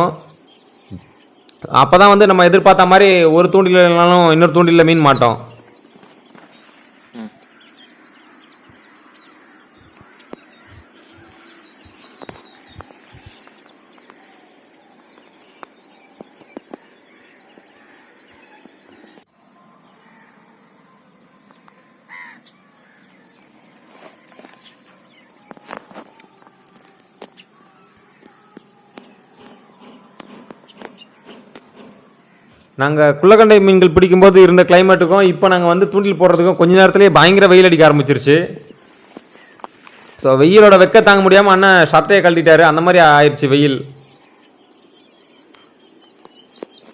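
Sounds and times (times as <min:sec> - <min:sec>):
insects trilling: 0:00.0 - 0:46.9
bird call: 0:00.2 - 0:19.2, 0:42.0 - 0:46.9.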